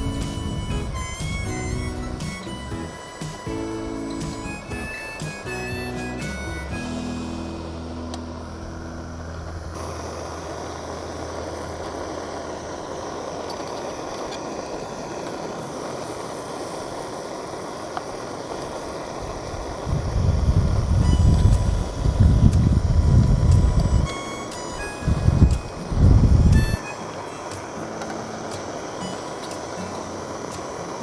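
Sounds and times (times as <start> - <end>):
stove burner hiss: 0.0 - 31.0
loud low rumble: 6.5 - 12.6.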